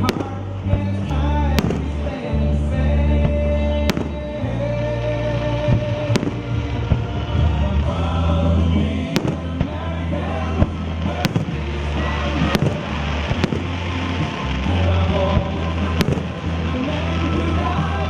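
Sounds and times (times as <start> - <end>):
music with steady bass line: 0.0 - 18.0
firework shells bursting: 10.5 - 18.0.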